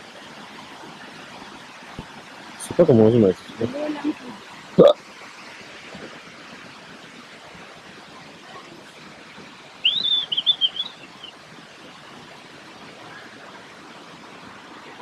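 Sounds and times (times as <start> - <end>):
flowing water: 0.0 - 15.0
bird chirping: 9.8 - 11.3.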